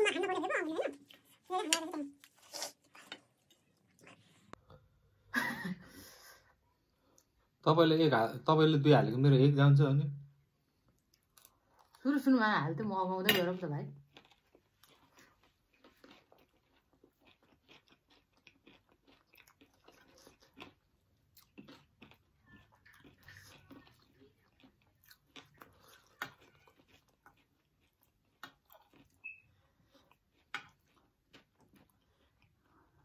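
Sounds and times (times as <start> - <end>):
crunchy snack chewing: 14.1 - 32.7.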